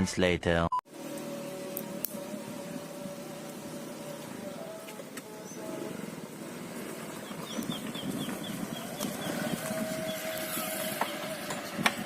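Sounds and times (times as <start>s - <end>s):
vehicle engine running: 0.9s - 12.0s
bird chirping: 6.8s - 11.5s.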